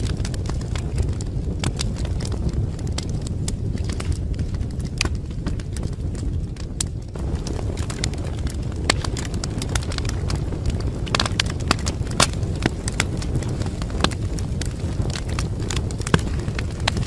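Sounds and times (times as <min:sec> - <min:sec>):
fire crackling and popping: 0:12.2 - 0:13.2.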